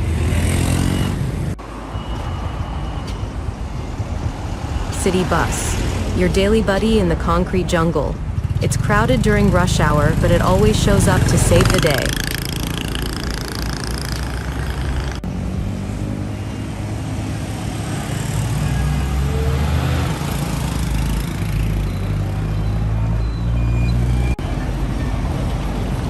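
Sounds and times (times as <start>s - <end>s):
bus engine rumbling: 0.0s - 26.0s.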